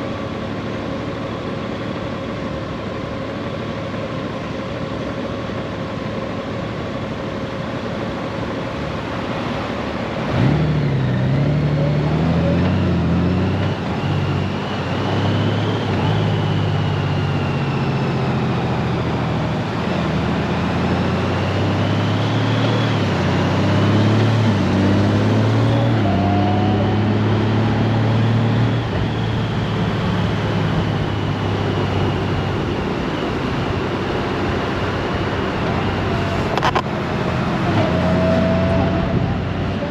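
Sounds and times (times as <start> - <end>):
wind and road noise: 0.0 - 39.9
motorcycle engine accelerating: 10.0 - 39.9.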